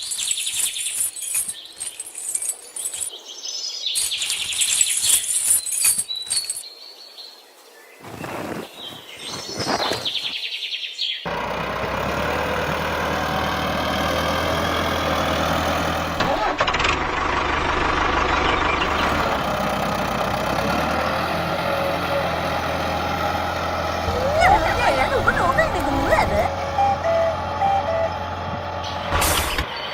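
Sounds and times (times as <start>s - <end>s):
birds chirping faintly: 0.0s - 11.3s
engine running with low hum: 11.3s - 29.9s.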